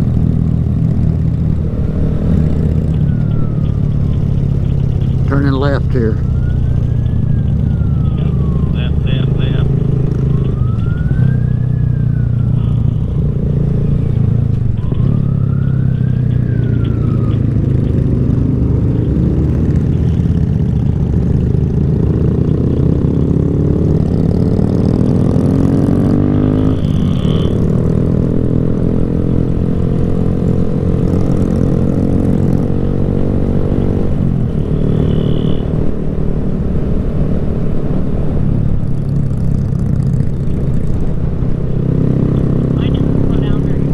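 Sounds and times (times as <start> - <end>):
motorcycle engine revving: 0.0 - 43.9
road and wind noise: 0.0 - 43.9
siren-like tone: 1.4 - 36.4.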